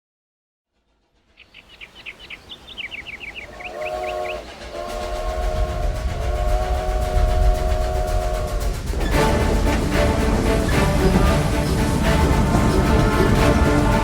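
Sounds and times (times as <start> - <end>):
train rumble: 0.8 - 14.0
train whistle: 3.4 - 14.0
heavy low beat: 3.7 - 14.0.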